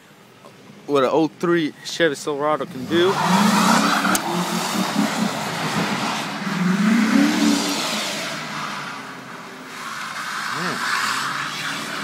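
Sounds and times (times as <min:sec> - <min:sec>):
truck engine revving: 0:02.9 - 0:08.8.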